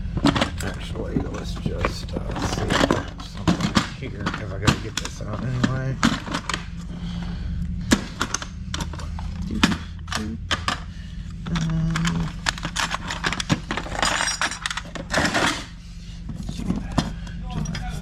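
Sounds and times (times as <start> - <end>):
metal hardware clinking: 11.6 - 15.7.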